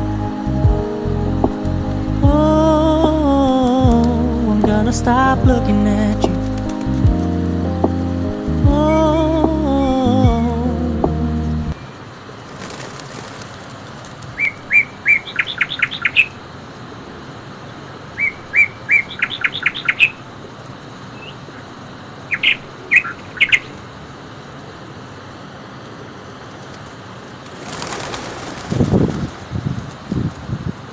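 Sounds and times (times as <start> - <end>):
songbird singing: 0.0 - 10.8, 14.3 - 16.5, 17.2 - 23.9
steady background hiss: 0.0 - 30.9
rushing rustling noise: 12.1 - 14.8, 26.2 - 30.9.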